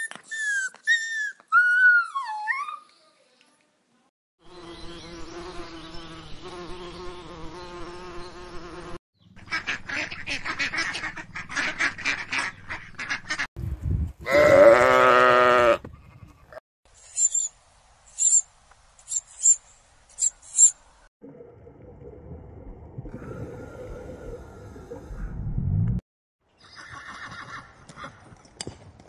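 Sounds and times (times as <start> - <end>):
ducks quacking: 9.4 - 13.5
long wavering bleat-like call: 14.2 - 16.4
parrot chicks squeaking: 17.1 - 17.5.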